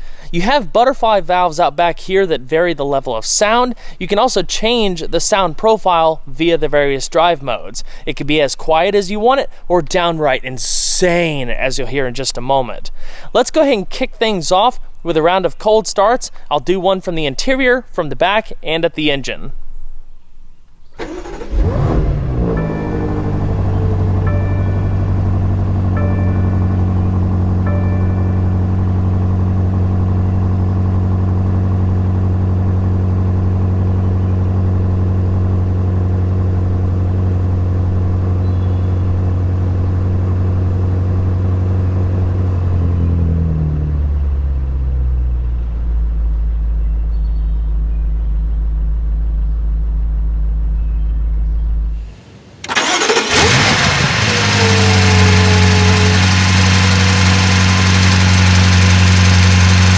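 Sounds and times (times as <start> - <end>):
car engine starting and idling: 20.9 - 59.9.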